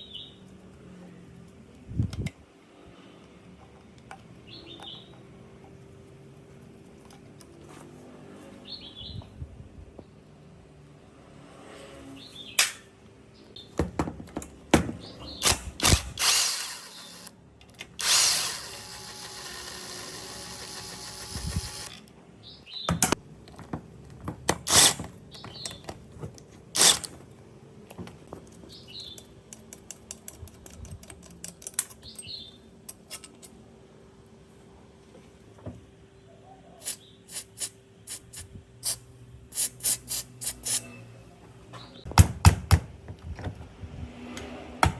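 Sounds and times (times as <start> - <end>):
power tool running: 15.4 - 17.3, 18.0 - 22.0.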